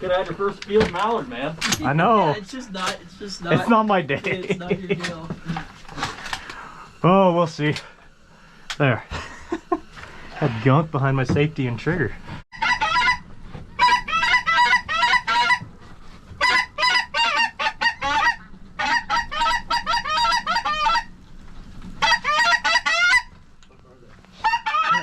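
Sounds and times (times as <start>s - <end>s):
goose honking: 12.6s - 15.7s, 16.4s - 21.2s, 22.0s - 23.4s, 24.4s - 25.0s.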